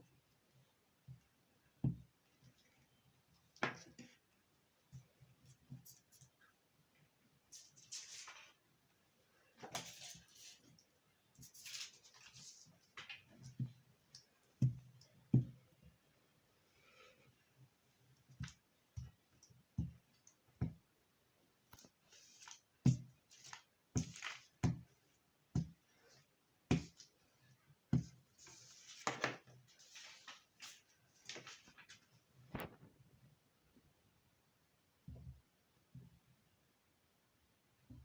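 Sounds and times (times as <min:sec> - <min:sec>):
paper rustling: 0:07.6 - 0:08.6, 0:11.5 - 0:13.2, 0:28.4 - 0:32.7.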